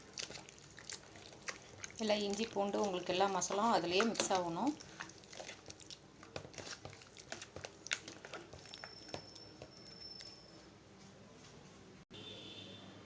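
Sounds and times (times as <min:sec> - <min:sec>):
wet squelches of stirred chicken: 0:00.0 - 0:10.4.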